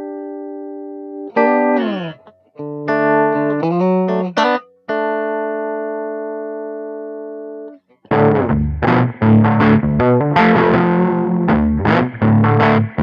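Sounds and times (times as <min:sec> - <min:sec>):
strummed guitar chords: 0:00.0 - 0:13.0
band with distorted guitar: 0:01.7 - 0:02.3.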